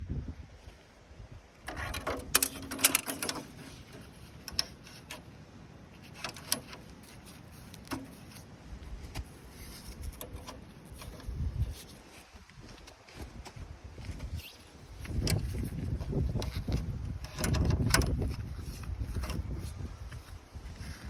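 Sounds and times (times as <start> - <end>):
metal parts clinking and rattling: 1.7 - 5.2.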